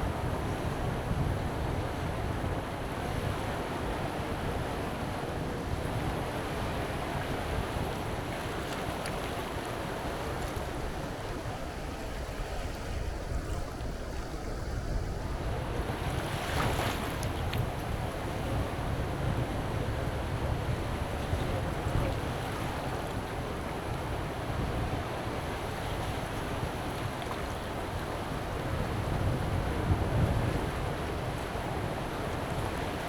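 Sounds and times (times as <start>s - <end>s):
surf on a beach: 0.0s - 33.0s
wind buffeting microphone: 28.3s - 33.0s.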